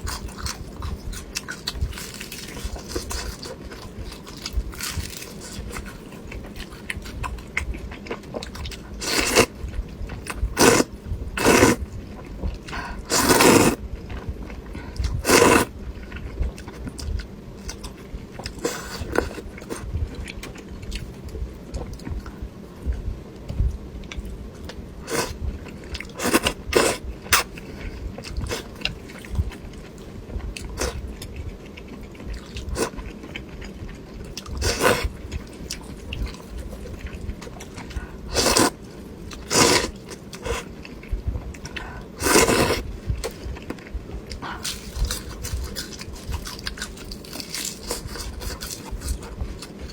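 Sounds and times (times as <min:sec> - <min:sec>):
loud slurping of noodles: 0:10.6 - 0:10.8, 0:11.4 - 0:11.8, 0:13.1 - 0:13.8, 0:15.2 - 0:15.7, 0:42.2 - 0:42.8.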